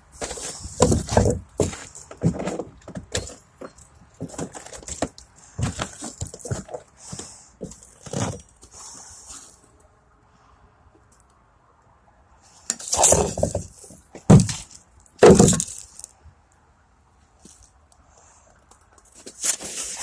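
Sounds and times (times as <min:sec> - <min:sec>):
heavy knocks of hard material: 0:00.2 - 0:03.4, 0:04.2 - 0:06.8, 0:13.0 - 0:15.8.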